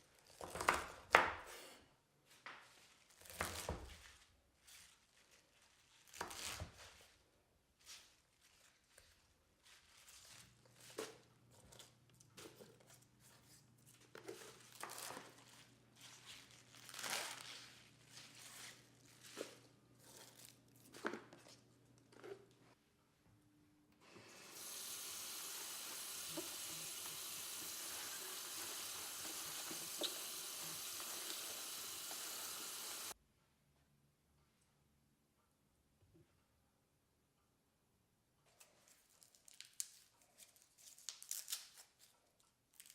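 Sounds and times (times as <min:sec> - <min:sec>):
rustling and crinkling: 0:02.2 - 0:22.8.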